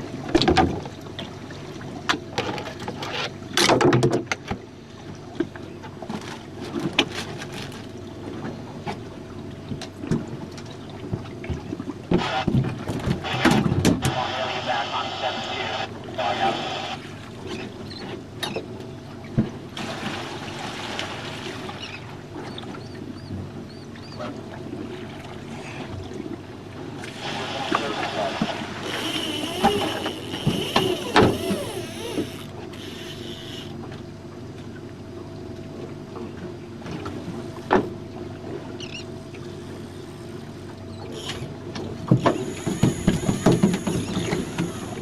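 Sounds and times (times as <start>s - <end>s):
knocks and clatter aboard boat: 0.0s - 14.3s, 17.0s - 45.0s
water noise: 0.0s - 45.0s
water splashing against boat hull: 17.1s - 34.8s.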